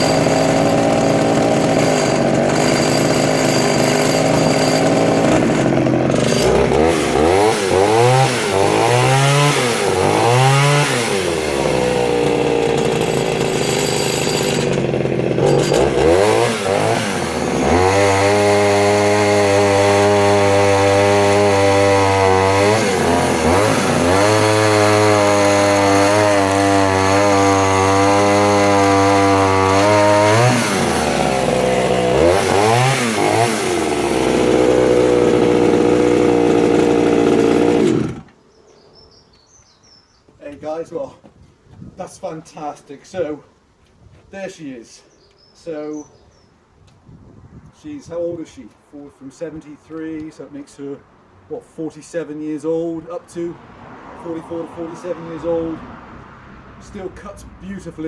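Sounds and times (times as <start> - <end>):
chainsaw revving: 0.0 - 38.4.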